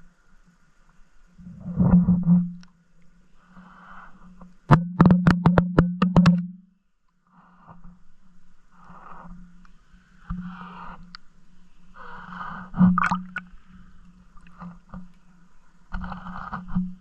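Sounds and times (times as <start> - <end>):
sharp clicks and knocks: 4.7 - 6.6.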